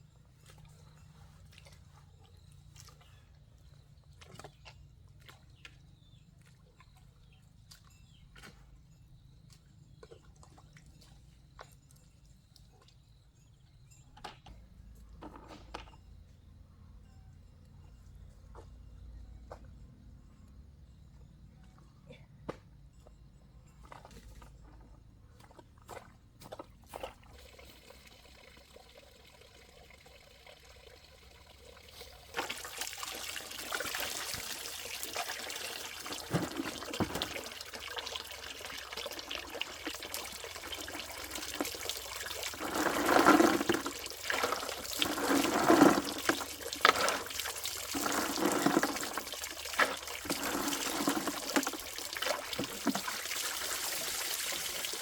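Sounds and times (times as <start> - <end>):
water pouring and gurgling: 23.8 - 55.0.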